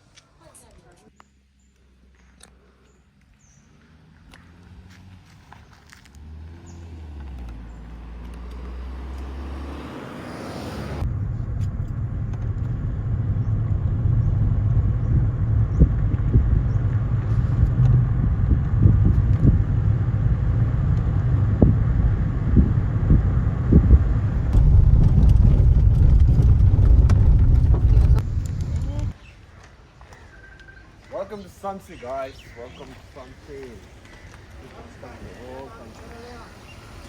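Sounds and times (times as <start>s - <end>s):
low road rumble: 1.1s - 29.4s
low engine hum: 3.7s - 29.2s
irregular thumps: 21.0s - 29.2s.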